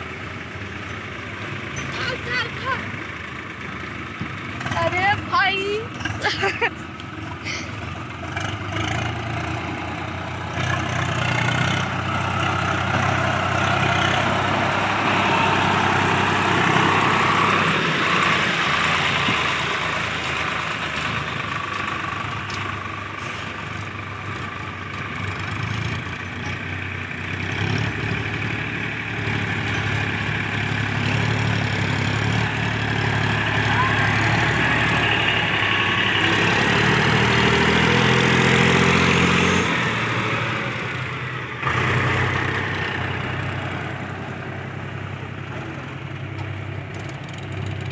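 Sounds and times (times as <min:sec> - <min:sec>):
diesel tractor engine clattering: 0:00.0 - 0:47.9.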